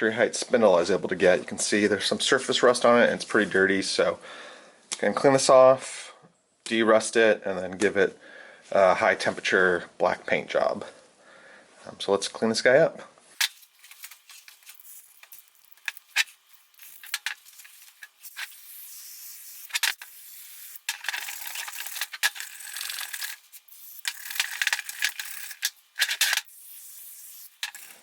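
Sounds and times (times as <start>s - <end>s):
scrubbing rust off steel: 13.4s - 28.0s.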